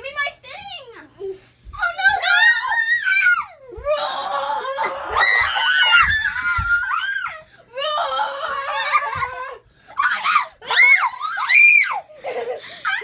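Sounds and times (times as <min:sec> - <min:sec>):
children screaming and laughing: 0:02.0 - 0:13.0.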